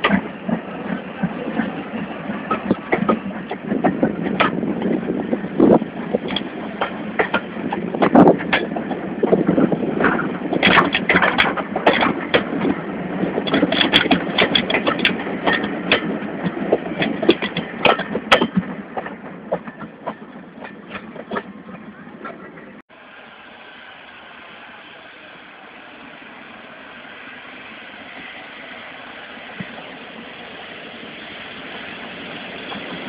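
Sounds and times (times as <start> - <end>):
steam locomotive rushing: 0.0 - 33.0
sharp metallic clanks and knocks: 13.4 - 21.5.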